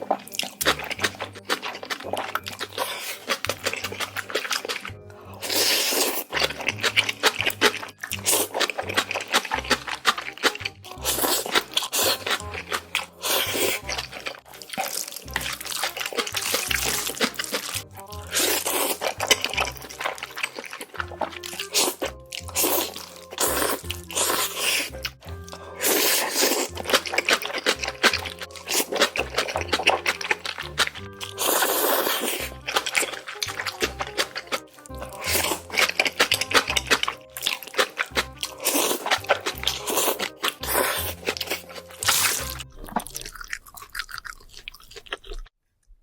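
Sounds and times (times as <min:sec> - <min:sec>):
chewing with sticky smacks: 0:00.0 - 0:45.5
slurping noodles: 0:00.0 - 0:45.5
background music with bass line: 0:06.4 - 0:14.7, 0:15.3 - 0:20.3, 0:21.0 - 0:43.0.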